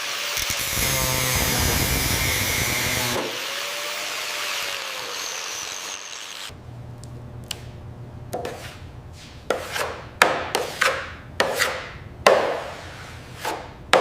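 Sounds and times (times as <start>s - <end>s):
harsh workshop tool noise: 0.0s - 6.6s.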